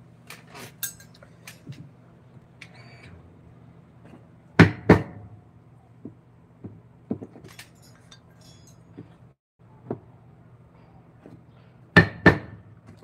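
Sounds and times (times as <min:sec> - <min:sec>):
high metallic clink: 0:00.8 - 0:01.6, 0:07.5 - 0:09.1.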